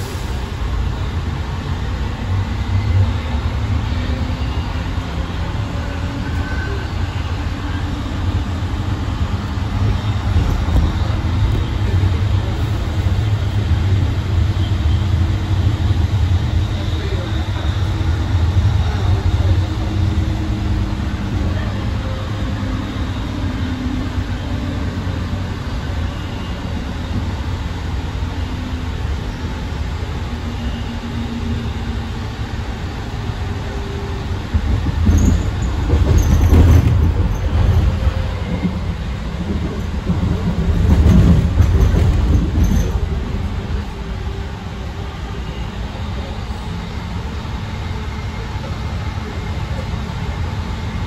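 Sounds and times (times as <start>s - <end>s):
train wheels rumbling and humming: 0.0s - 51.0s
faint high wheel squeal: 2.8s - 8.6s, 21.4s - 27.3s, 35.0s - 39.1s.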